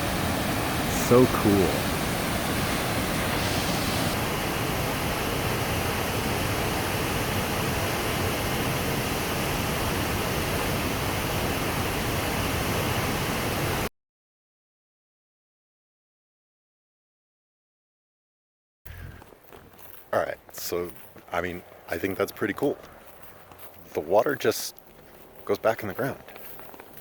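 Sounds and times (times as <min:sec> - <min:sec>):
waterfall roaring: 0:00.0 - 0:13.9.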